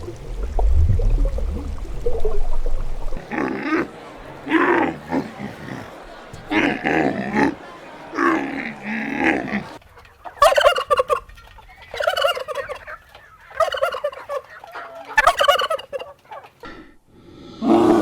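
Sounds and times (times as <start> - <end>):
animal call: 3.2 - 9.8
turkey gobbling: 3.2 - 16.6.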